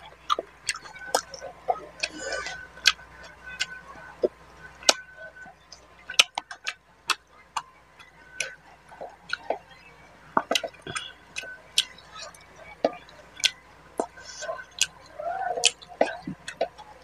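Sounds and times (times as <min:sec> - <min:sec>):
wet chewing: 0:06.2 - 0:09.6, 0:10.4 - 0:15.0.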